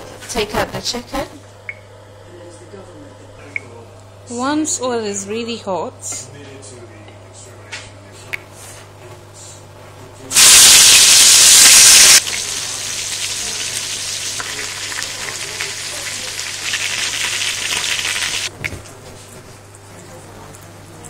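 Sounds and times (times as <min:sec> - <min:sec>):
chicken sizzling in hot oil: 0:10.3 - 0:18.5.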